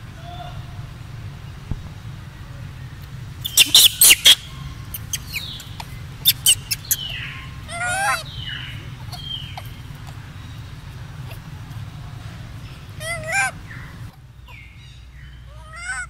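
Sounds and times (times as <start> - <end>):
sharp high bird chirps: 3.4 - 10.6
wavering bird call: 3.4 - 16.0
short falling bird whistles: 3.5 - 4.5.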